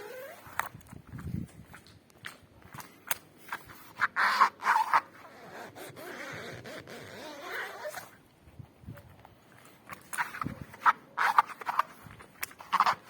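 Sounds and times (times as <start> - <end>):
pool creaking and squeaking: 0.0 - 0.8, 3.5 - 8.2, 9.7 - 13.0.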